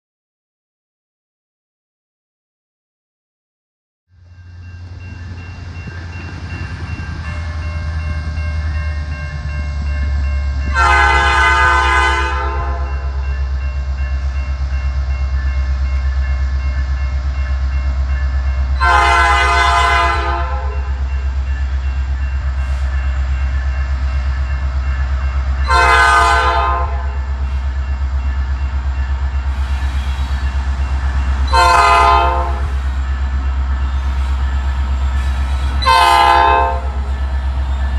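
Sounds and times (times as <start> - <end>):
diesel locomotive engine rumble: 4.1 - 37.9
locomotive air horn blasts: 10.7 - 13.1, 18.8 - 21.0, 25.6 - 27.2, 31.4 - 32.8, 35.6 - 37.2.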